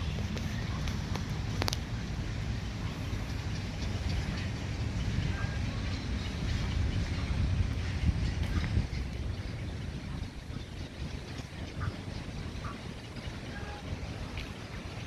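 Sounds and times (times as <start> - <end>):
low outdoor rumble: 0.0 - 15.0
faint clicks: 0.2 - 1.9.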